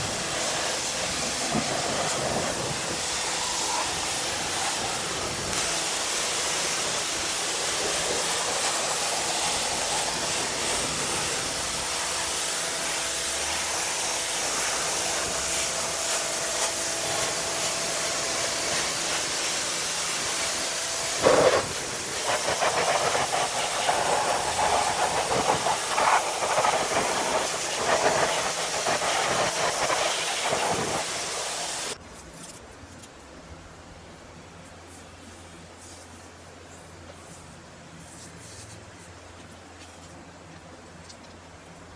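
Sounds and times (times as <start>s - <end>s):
pressure washer spray hissing: 0.0s - 32.0s.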